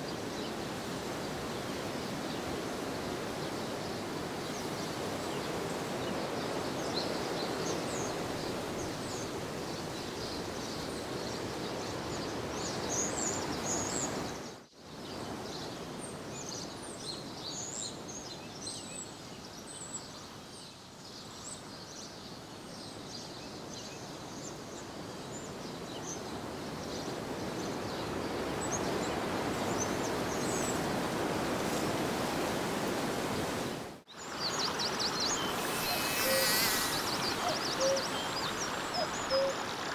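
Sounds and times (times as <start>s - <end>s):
small birds chirping: 34.1s - 39.9s
steady rushing noise: 34.2s - 39.9s.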